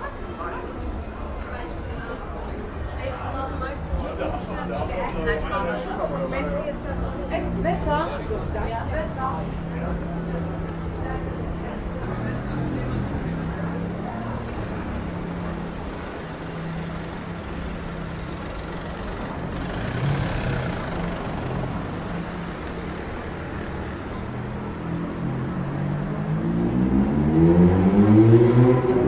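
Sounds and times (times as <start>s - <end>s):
street traffic: 0.0s - 29.0s
heavy vehicle engine running: 6.8s - 28.2s.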